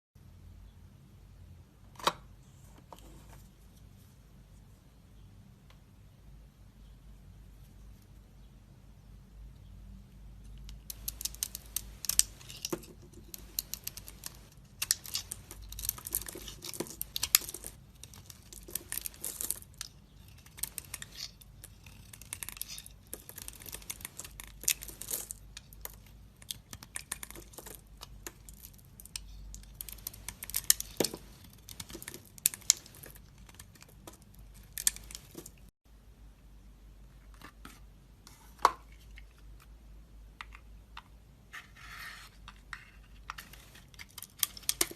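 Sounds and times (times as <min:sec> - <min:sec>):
knife carving dry soap: 0:10.5 - 0:35.7.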